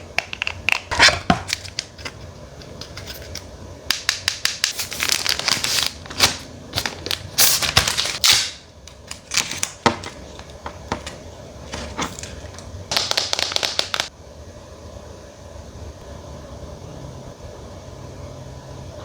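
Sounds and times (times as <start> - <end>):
packaging rustling: 4.4 - 14.1.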